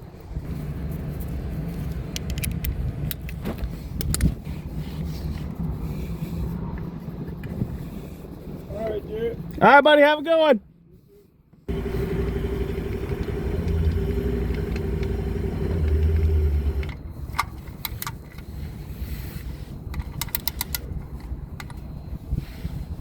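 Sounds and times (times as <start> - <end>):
light clicks and rattles: 1.6 - 4.4, 11.7 - 18.6, 19.9 - 21.9
vehicle engine running: 11.7 - 17.0.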